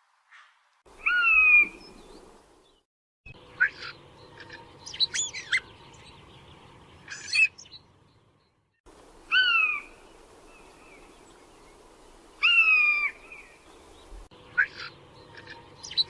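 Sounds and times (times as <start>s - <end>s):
clear falling bird call: 0.3s - 2.8s, 3.4s - 16.0s
bird chirps: 0.4s - 8.7s, 12.4s - 16.0s
buzzy bird call: 9.3s - 11.1s, 12.4s - 13.6s.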